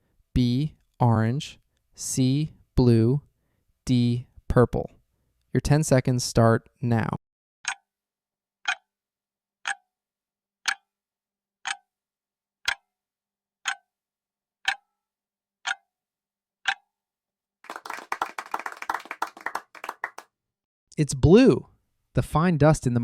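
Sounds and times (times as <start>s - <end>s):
clock ticking: 7.6s - 7.9s, 8.6s - 8.9s, 9.6s - 9.9s, 10.6s - 10.9s, 11.6s - 11.9s, 12.6s - 12.9s, 13.6s - 13.9s, 14.6s - 14.9s, 15.6s - 15.8s, 16.6s - 16.9s.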